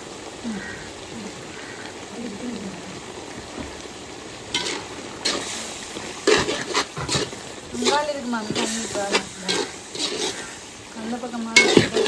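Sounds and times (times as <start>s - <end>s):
meat sizzling in oil: 0.0s - 12.0s
pot clatter: 4.5s - 10.7s, 11.5s - 12.0s.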